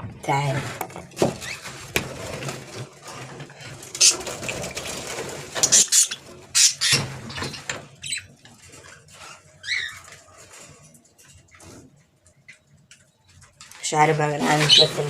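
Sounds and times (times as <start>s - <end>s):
small birds calling: 5.6s - 8.4s, 9.3s - 10.1s, 14.5s - 15.0s.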